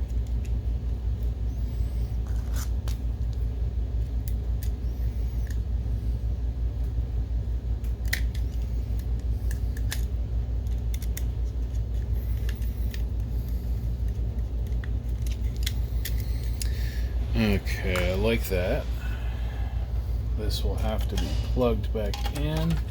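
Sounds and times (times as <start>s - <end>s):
steady low hum: 0.0s - 22.9s
plastic parts clicking and tapping: 22.0s - 22.9s.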